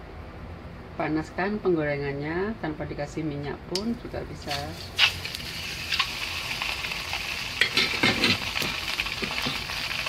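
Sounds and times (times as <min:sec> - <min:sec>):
fish sizzling in a frying pan: 0:04.6 - 0:10.0
crackles and pops: 0:05.0 - 0:10.0.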